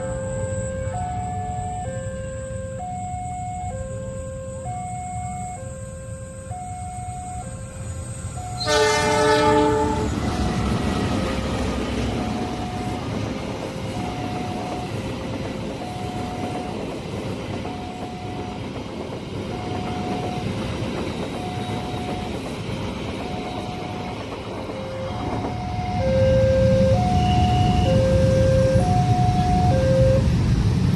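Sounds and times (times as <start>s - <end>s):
train horn: 0.0s - 2.8s, 8.4s - 11.2s, 24.8s - 30.5s
level crossing alarm chime: 0.0s - 9.0s, 10.4s - 13.2s, 13.8s - 18.8s, 19.5s - 30.4s
train passing rumble: 0.0s - 30.9s
wheels clattering over rails: 10.0s - 28.2s.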